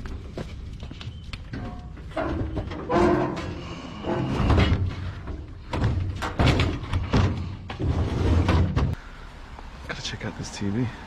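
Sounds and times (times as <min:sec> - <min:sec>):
heavy thuds and clunks: 0:01.5 - 0:09.0.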